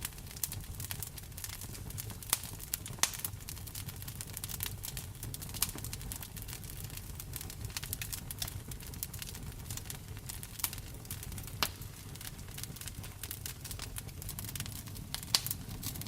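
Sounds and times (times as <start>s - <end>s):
wood fire crackling and popping: 0.0s - 16.0s
rain rumbling: 13.2s - 16.0s.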